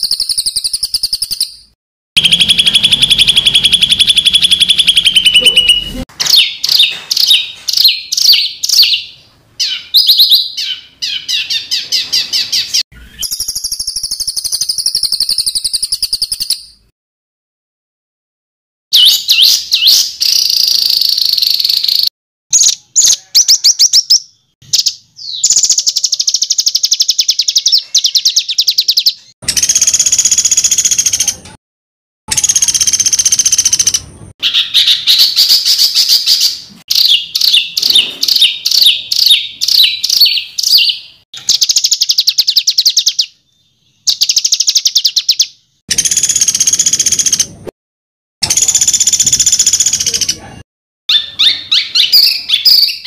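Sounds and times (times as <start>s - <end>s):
songbird trilling: 2.2s - 16.7s, 32.4s - 43.3s.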